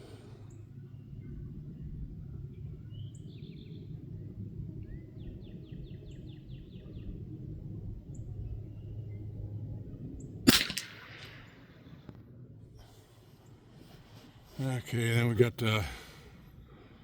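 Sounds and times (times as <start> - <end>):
bird chirping trills: 0.0 - 11.9
low steady background: 0.0 - 17.0
rifle shot: 10.4 - 11.9
rifle click: 10.5 - 11.5.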